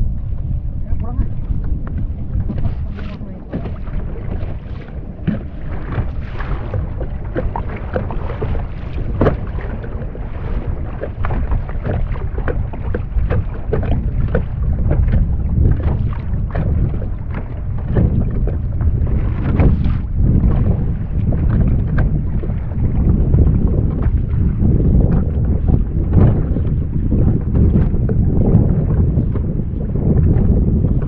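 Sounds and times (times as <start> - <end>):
wind buffeting microphone: 0.0 - 31.0
knocks against a kayak: 1.6 - 9.9, 11.2 - 22.4
small water splashes: 2.4 - 22.9.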